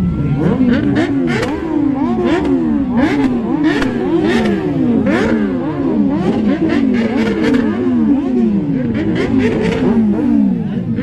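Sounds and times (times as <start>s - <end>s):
motorcycle engines revving: 0.0s - 11.0s
sharp exhaust pops: 2.4s - 5.3s.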